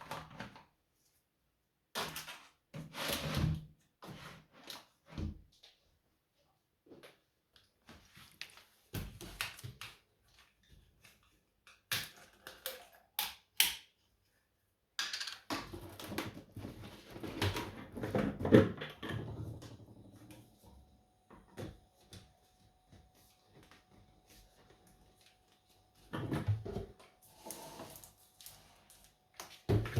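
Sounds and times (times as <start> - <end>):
objects clicking and knocking: 15.0 - 20.3.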